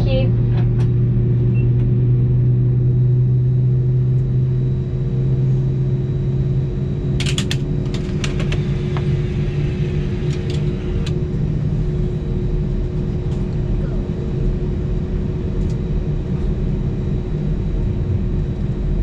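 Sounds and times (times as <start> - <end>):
airplane cabin hum: 0.0 - 19.0
sharp clicks and creaks: 7.2 - 9.1.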